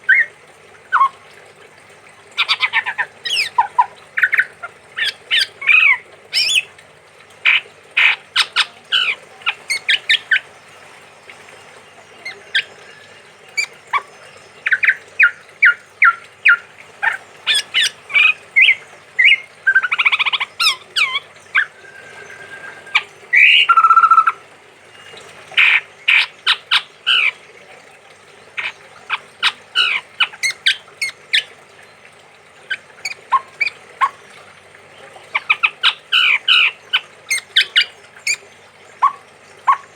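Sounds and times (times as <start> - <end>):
harsh rattling bird calls: 0.0 - 1.3, 2.0 - 39.9
bird calling sharp notes: 11.9 - 27.4, 28.6 - 31.6.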